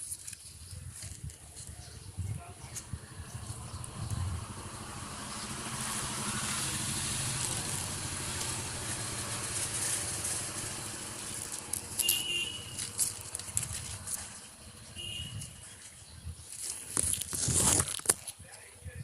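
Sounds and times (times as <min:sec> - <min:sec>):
vehicle passing by: 0:02.6 - 0:15.0.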